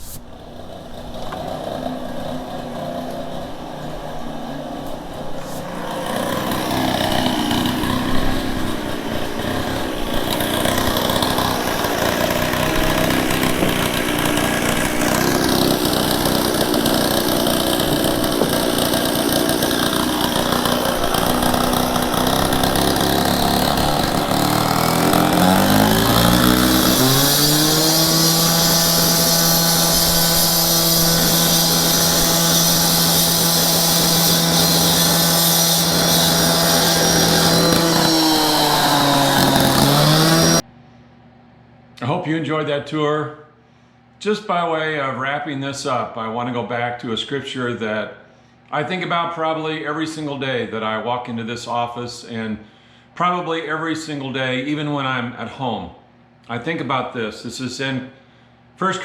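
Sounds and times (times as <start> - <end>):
power tool motor running: 0.0 - 40.6
motor winding up in pitch: 5.6 - 40.6.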